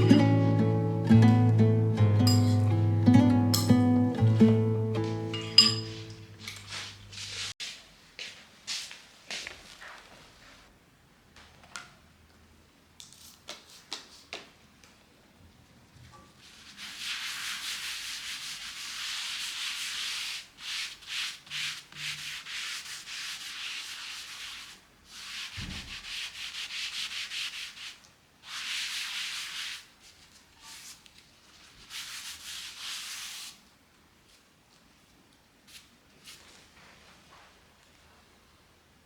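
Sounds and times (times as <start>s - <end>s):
scratchy rubbing: 16.5s - 29.8s.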